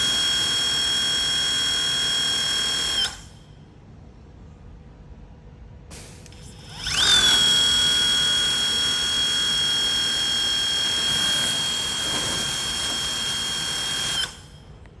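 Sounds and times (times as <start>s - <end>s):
electric motor whine: 6.4s - 14.4s.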